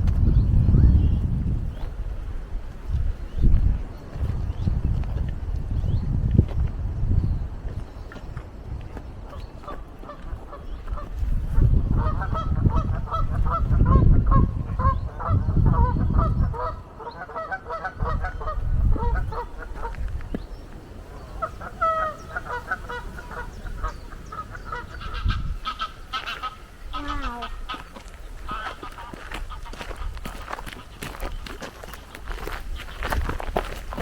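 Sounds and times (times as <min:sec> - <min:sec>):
low rumble on the microphone: 0:00.0 - 0:17.0, 0:18.0 - 0:25.9
geese honking: 0:11.9 - 0:20.0, 0:21.1 - 0:31.4.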